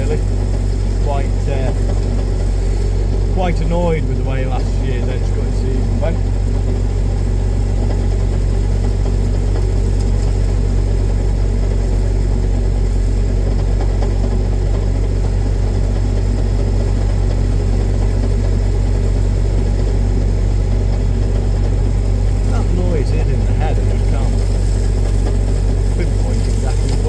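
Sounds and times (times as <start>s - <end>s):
tractor engine droning: 0.0s - 27.0s.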